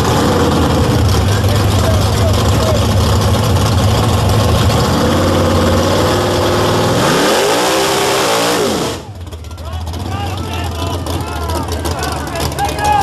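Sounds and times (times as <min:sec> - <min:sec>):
car engine revving hard: 0:00.0 - 0:09.1.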